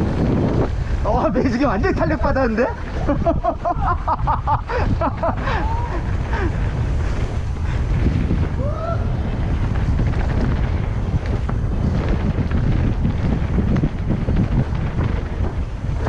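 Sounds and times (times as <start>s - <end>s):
bike rattling: 0.0s - 16.0s
wind buffeting microphone: 0.0s - 16.0s.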